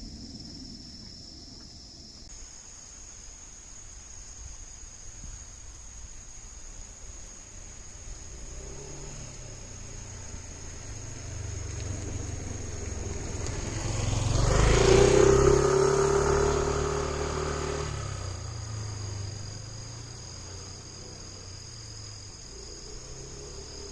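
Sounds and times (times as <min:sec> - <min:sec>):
high insect trill: 0:00.0 - 0:23.9
motor vehicle passing by: 0:07.7 - 0:23.9.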